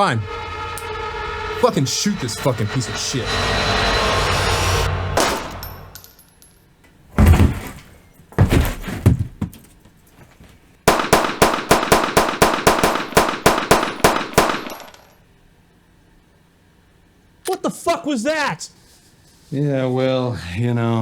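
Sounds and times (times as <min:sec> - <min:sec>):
gunshots: 0:05.2 - 0:05.8, 0:10.9 - 0:15.0.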